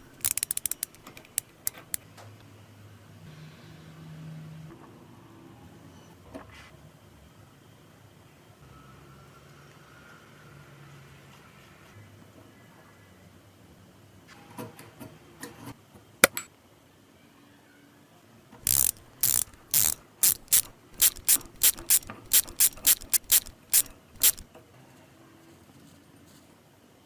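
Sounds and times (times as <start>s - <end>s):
metal mechanism clicking and knocking: 0.0s - 2.0s, 16.2s - 16.5s, 18.6s - 24.5s
short mechanical strokes: 0.0s - 2.0s, 18.6s - 24.5s.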